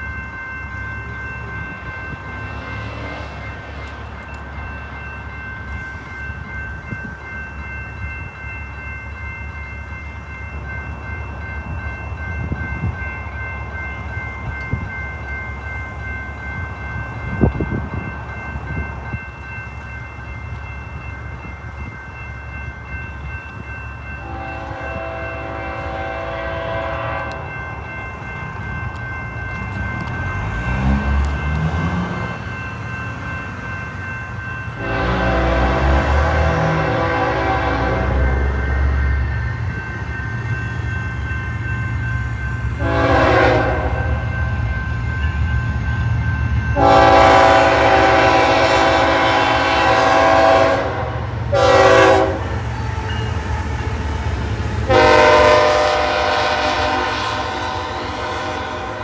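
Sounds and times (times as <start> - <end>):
train rumbling: 0.0 - 59.0
train air horn blasts: 24.2 - 27.4, 34.8 - 38.4, 42.8 - 44.2, 46.8 - 52.6, 54.9 - 59.0.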